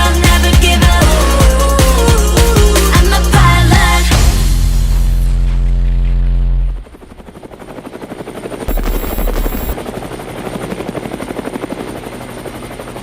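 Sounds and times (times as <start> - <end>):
helicopter rotor chopping: 6.8 - 13.0.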